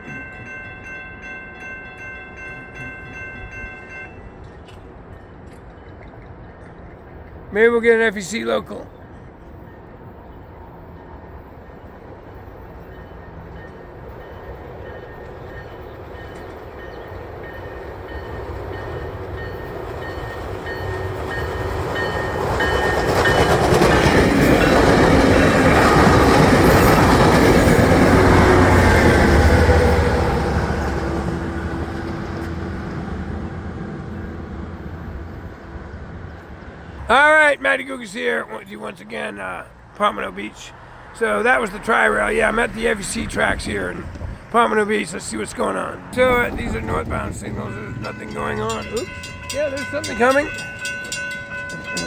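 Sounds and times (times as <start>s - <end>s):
crossing bell ringing: 0.0s - 32.5s, 37.0s - 52.0s
train passing: 0.0s - 52.0s
wheels on rails: 12.7s - 32.6s, 45.2s - 52.0s.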